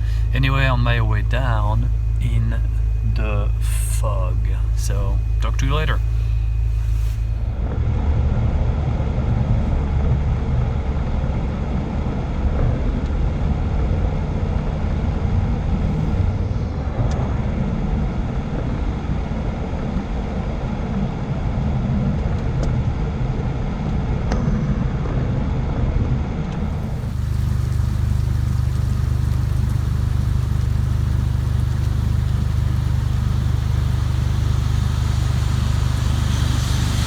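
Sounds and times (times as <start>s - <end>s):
vehicle engine rumble: 0.0s - 10.8s, 26.6s - 37.0s.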